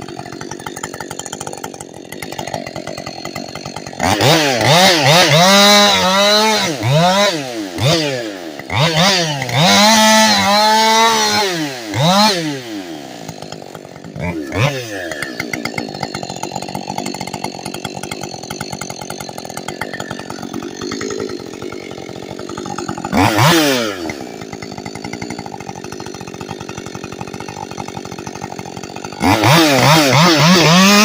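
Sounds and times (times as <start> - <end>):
chainsaw idling and revving: 0.0 - 31.0.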